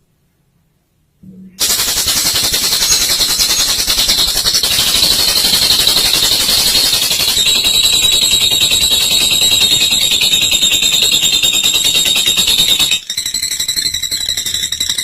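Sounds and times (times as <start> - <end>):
lovebird rattling trill: 1.6 - 15.0.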